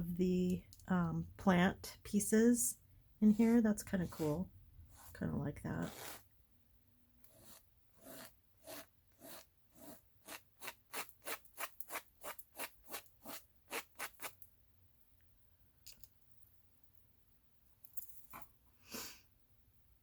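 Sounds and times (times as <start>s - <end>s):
plant brush scratching paint: 3.2s - 6.3s, 7.3s - 14.4s.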